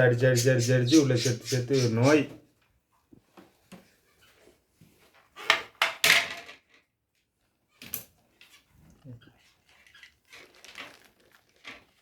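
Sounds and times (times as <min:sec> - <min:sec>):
knocks and clatters of parts: 0:05.6 - 0:06.8.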